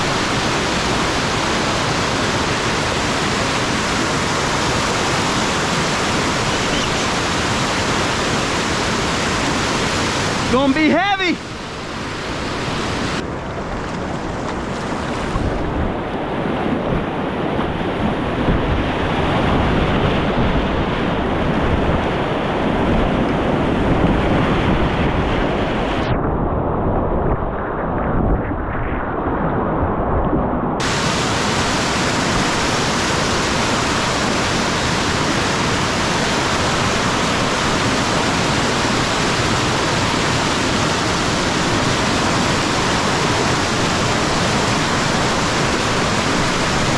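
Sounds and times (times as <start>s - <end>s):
whitewater rushing: 0.0s - 16.0s, 30.8s - 46.9s.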